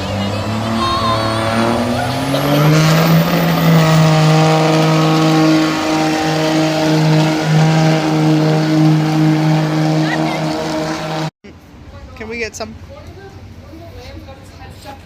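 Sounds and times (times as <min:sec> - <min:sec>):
truck engine revving under load: 0:00.0 - 0:11.3.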